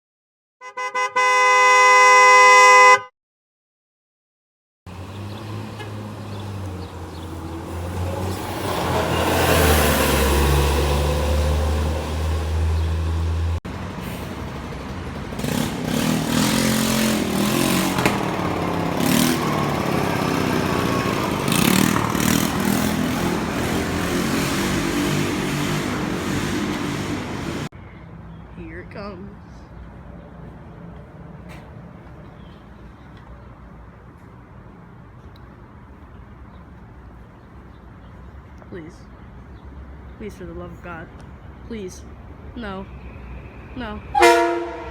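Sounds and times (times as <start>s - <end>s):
train rumbling: 6.9s - 27.7s
train horn chord: 44.1s - 44.9s.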